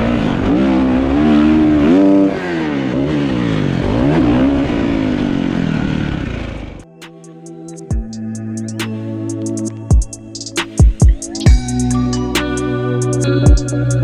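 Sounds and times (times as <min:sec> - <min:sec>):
dirt bike engine revving: 0:00.0 - 0:06.8.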